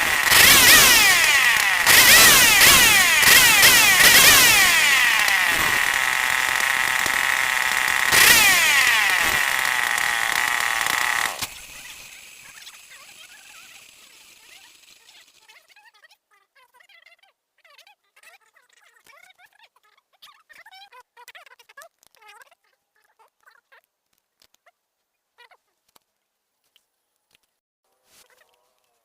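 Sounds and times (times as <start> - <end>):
two-stroke engine revving: 0.0 - 15.5.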